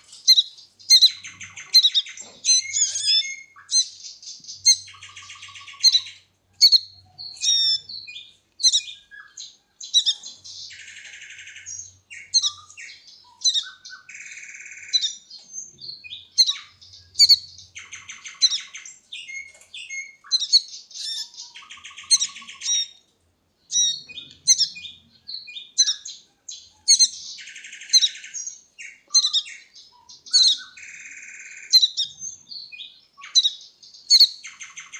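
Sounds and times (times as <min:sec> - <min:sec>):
baby birds chirping: 0:00.0 - 0:34.9
harsh buzzy bird calls: 0:20.2 - 0:23.0.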